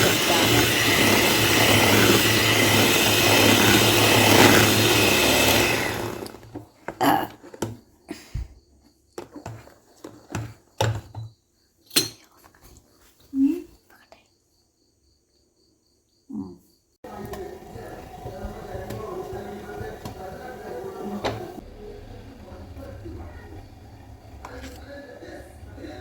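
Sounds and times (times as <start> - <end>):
electric mixer motor hum: 0.0 - 6.6, 17.1 - 26.0.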